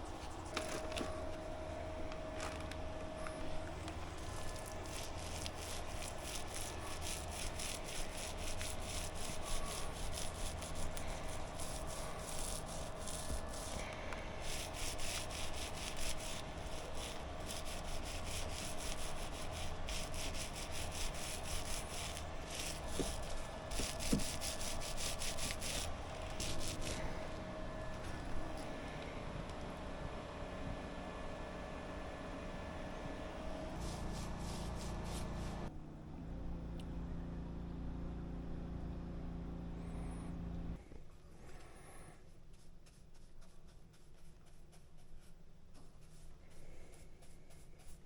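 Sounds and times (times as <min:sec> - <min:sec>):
hand sanding strokes: 0:04.0 - 0:27.3, 0:33.6 - 0:35.7.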